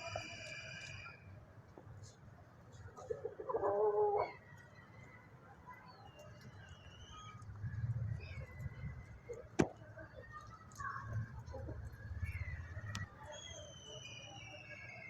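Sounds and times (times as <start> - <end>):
faint high chirps: 4.3 - 10.8, 11.6 - 15.0.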